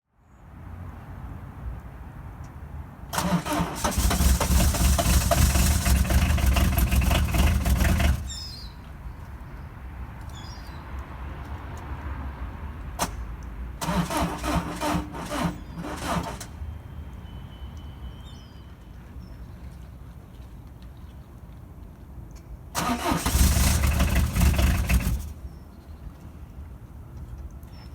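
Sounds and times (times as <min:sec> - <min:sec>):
diesel engine cranking: 0:03.1 - 0:08.7, 0:13.8 - 0:16.6, 0:22.8 - 0:25.6.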